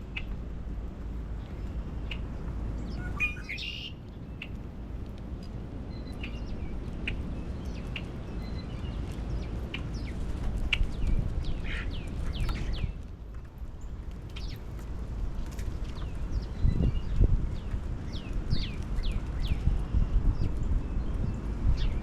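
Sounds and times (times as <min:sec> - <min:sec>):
wild birds chirping: 0:01.3 - 0:04.9, 0:05.8 - 0:14.9.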